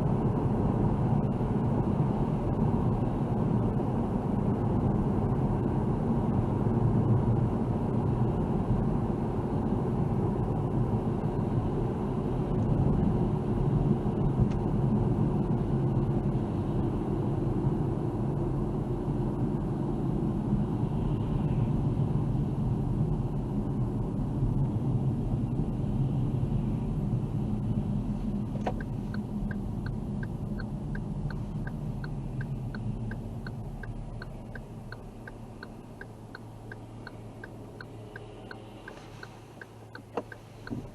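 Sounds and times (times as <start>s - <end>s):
car engine and road rumble: 0.0s - 40.9s
turn signal ticking: 28.5s - 40.9s
click: 37.4s - 40.9s.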